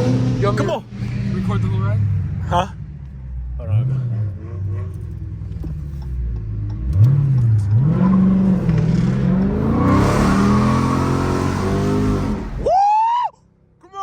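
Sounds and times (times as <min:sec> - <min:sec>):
car engine revving hard: 0:00.0 - 0:02.6, 0:06.8 - 0:12.6.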